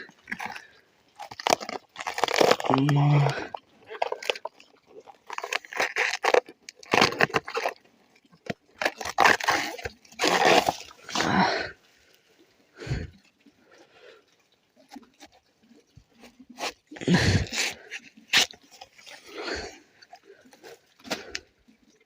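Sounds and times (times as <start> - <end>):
banana stem skin tearing: 1.2 - 4.5, 5.2 - 7.8, 8.4 - 11.5, 17.4 - 19.2.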